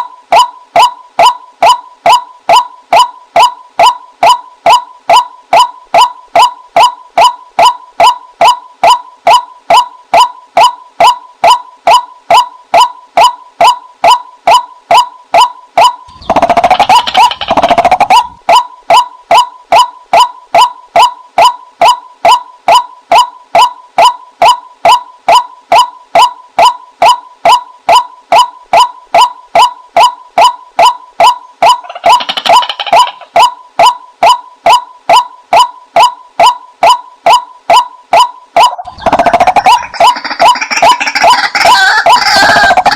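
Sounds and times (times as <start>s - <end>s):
waterhen calling loud even notes: 15.8s - 19.9s, 35.5s - 42.9s
rapid harsh bird chatter: 16.1s - 18.3s.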